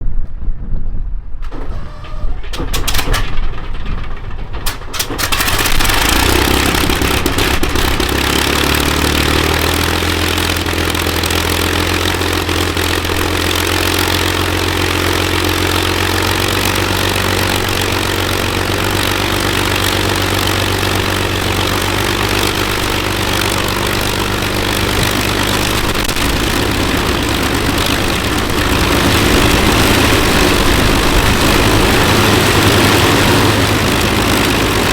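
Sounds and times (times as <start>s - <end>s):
aircraft engine starting and idling: 1.3s - 34.9s.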